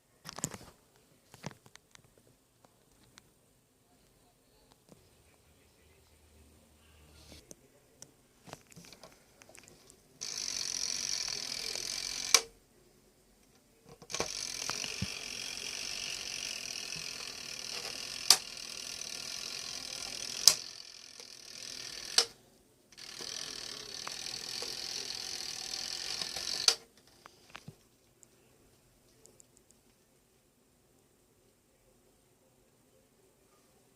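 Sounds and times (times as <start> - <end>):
sharp clicks: 12.3 - 12.5, 22.1 - 22.4.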